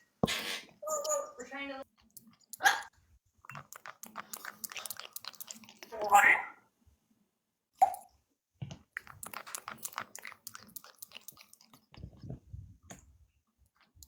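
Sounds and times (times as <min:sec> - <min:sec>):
crunchy chewing: 0:01.8 - 0:05.9, 0:09.0 - 0:12.2.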